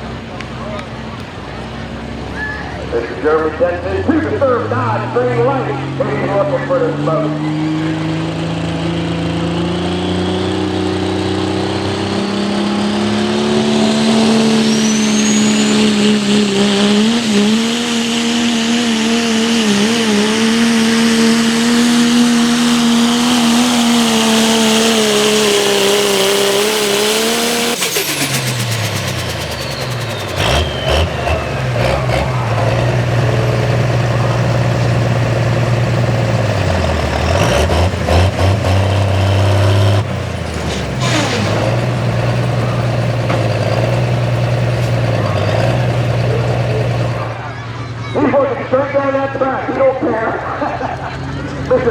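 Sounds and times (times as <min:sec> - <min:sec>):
diesel truck engine at high revs: 0:00.0 - 0:51.9
turbo whistle: 0:13.3 - 0:20.3, 0:27.7 - 0:32.2.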